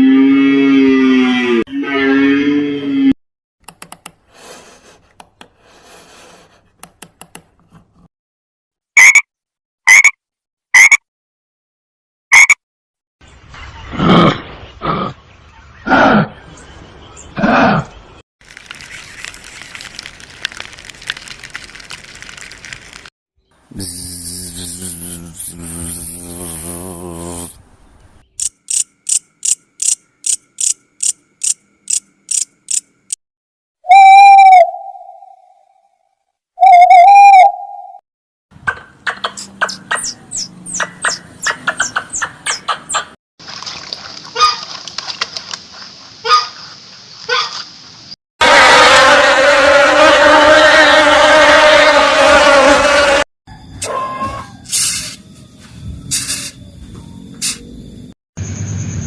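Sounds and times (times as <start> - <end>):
deep buzzy animal call: 23.7 - 27.6, 48.4 - 53.2
lower animal call: 33.9 - 35.8.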